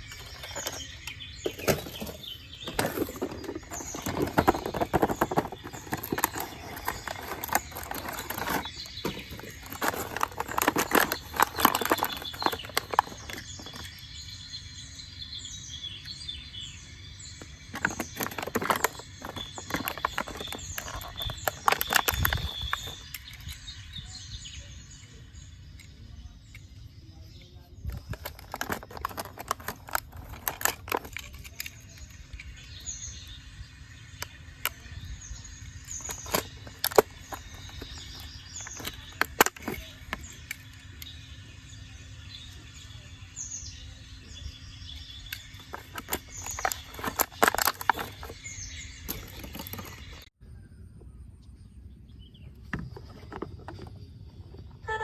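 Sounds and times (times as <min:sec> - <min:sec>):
irregular clicks and knocks: 0:00.0 - 0:14.0, 0:17.4 - 0:23.6, 0:45.3 - 0:48.4
birds chirping: 0:00.0 - 0:55.0.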